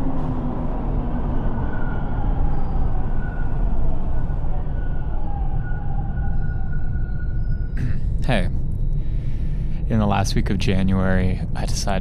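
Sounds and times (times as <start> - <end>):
faint high tones: 0.0 - 11.9
vehicle rumbling: 0.0 - 12.0.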